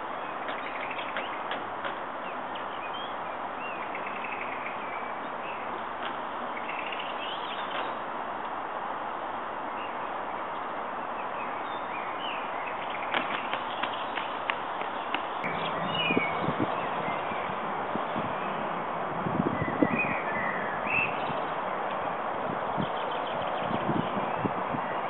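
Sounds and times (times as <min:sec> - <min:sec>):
birds chirping: 0:00.0 - 0:08.1, 0:09.6 - 0:18.8, 0:19.4 - 0:25.0
outdoor background rush: 0:00.0 - 0:25.0
sharp taps: 0:13.1 - 0:15.4.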